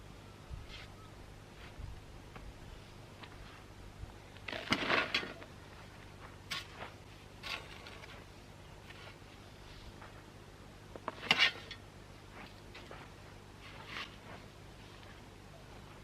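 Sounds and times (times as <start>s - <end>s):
dirt falling: 4.4s - 5.5s
shovel scraping soil: 4.5s - 5.5s, 6.5s - 9.2s, 11.0s - 11.8s, 13.6s - 14.5s.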